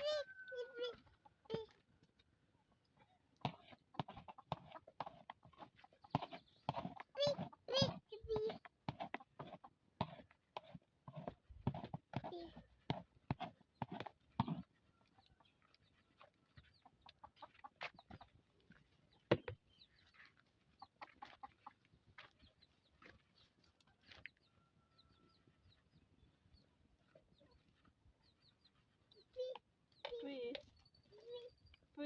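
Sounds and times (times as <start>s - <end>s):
chickens clucking and peeping: 14.9s - 19.2s, 19.8s - 29.6s.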